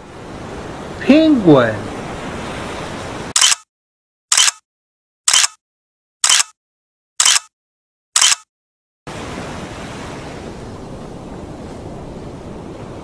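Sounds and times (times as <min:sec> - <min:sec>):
ocean surf: 0:00.0 - 0:03.4, 0:09.1 - 0:13.0
camera shutter clicks: 0:03.4 - 0:03.6, 0:04.3 - 0:04.6, 0:05.3 - 0:05.6, 0:06.2 - 0:06.6, 0:07.2 - 0:07.5, 0:08.2 - 0:08.5.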